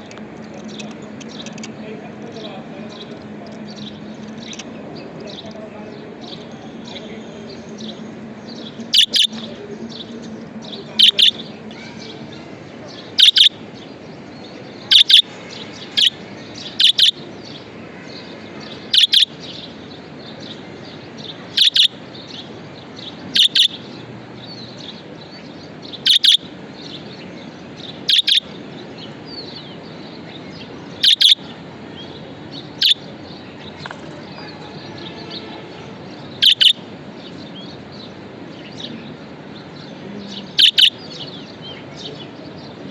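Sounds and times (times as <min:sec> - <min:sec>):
budgerigars chattering and twittering: 0:00.0 - 0:42.9
budgerigar double chirp: 0:08.9 - 0:09.3, 0:11.0 - 0:11.4, 0:13.2 - 0:13.6, 0:14.9 - 0:15.2, 0:16.0 - 0:16.2, 0:16.8 - 0:17.2, 0:18.9 - 0:19.3, 0:21.5 - 0:22.0, 0:23.4 - 0:23.8, 0:26.0 - 0:26.4, 0:28.0 - 0:28.5, 0:31.0 - 0:31.4, 0:32.8 - 0:33.0, 0:36.4 - 0:36.8, 0:40.6 - 0:41.0.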